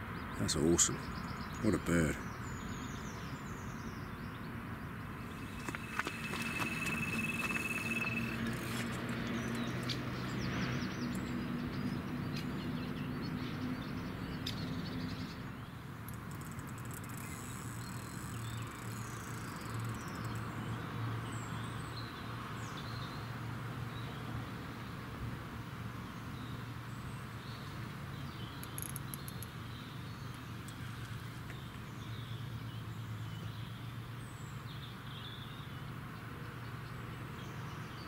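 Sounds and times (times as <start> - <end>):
small birds chirping: 0.0 - 23.3, 26.4 - 38.0
high beep: 5.4 - 8.8.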